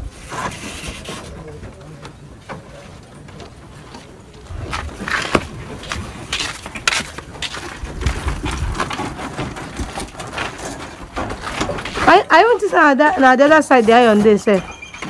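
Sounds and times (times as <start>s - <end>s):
sharp knocks and clatter: 4.7s - 12.7s.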